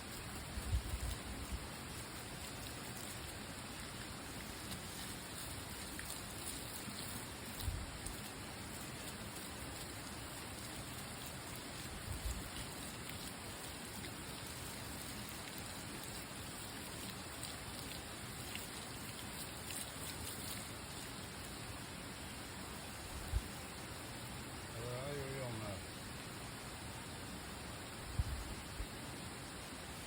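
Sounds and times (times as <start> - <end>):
steady rain hiss: 0.0 - 30.0.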